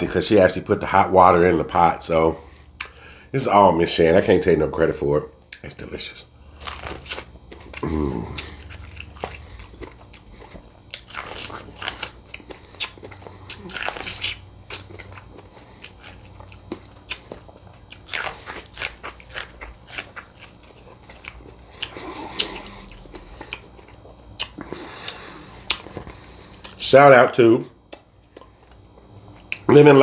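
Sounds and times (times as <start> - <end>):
person chewing crunchy food: 5.5 - 26.8, 27.8 - 29.9.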